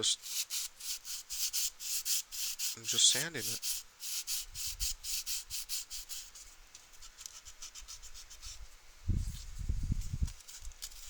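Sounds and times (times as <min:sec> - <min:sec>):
sandpaper rubbing: 0:00.2 - 0:06.5, 0:07.1 - 0:08.6, 0:10.3 - 0:11.0.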